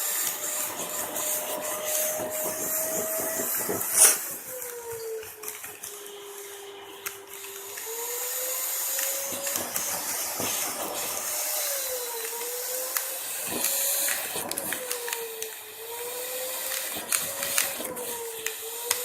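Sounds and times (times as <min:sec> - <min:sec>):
vacuum cleaner running: 0:00.0 - 0:19.0
vacuum head rubbing on carpet: 0:00.3 - 0:04.5.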